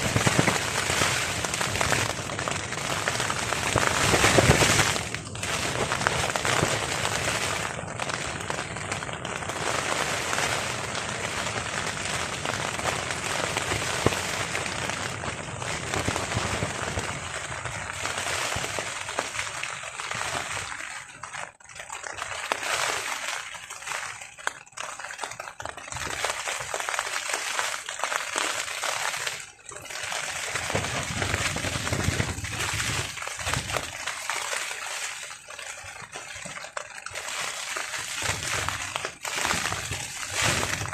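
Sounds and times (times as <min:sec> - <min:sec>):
heavy rain on a tarp: 0:00.0 - 0:40.9.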